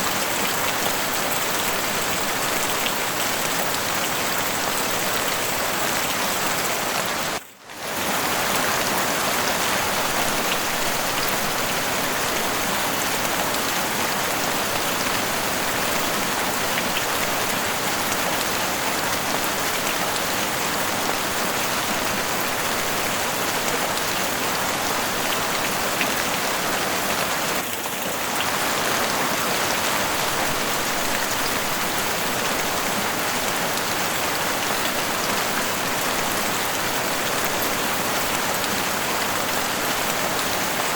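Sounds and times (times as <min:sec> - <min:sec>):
heavy rain on a roof: 0:00.0 - 0:40.9.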